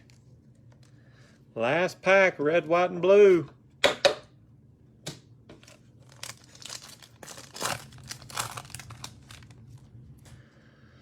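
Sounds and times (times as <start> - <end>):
plastic wrapper tearing and crinkling: 5.6 - 10.0.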